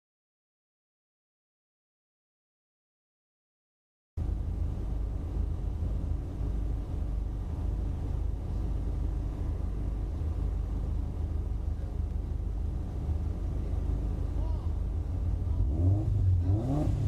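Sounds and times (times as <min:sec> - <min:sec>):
car engine idling: 0:04.2 - 0:17.0.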